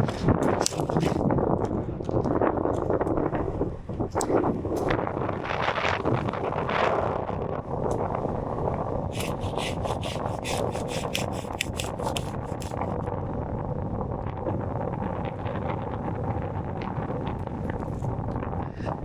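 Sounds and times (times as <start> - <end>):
wind buffeting microphone: 0.0 - 19.0
hand saw cutting branch: 9.1 - 13.0.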